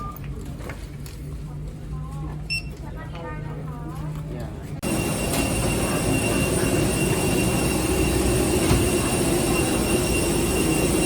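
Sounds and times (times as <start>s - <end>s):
airliner engine drone: 4.8s - 11.0s
thin high whine: 4.8s - 11.0s.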